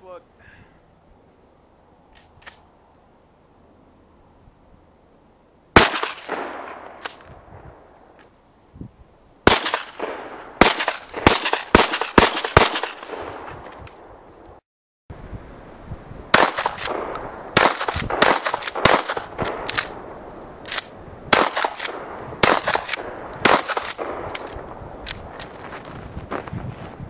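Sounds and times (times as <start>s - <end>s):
shotgun blasts with echo: 5.8s - 7.2s, 9.5s - 13.7s, 16.3s - 20.0s, 21.3s - 24.6s.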